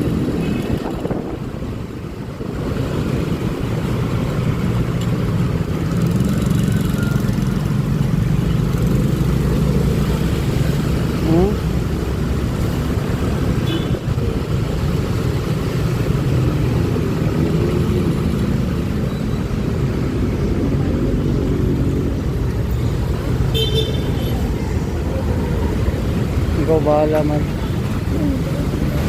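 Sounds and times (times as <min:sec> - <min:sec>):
wind noise: 0:00.0 - 0:03.8
traffic rumble: 0:00.0 - 0:29.0.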